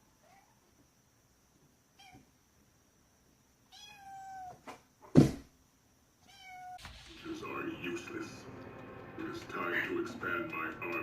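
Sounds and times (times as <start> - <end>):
cat meowing: 2.0 - 2.3, 3.7 - 4.6, 6.2 - 6.8
loud thump: 5.1 - 5.5, 6.8 - 7.4.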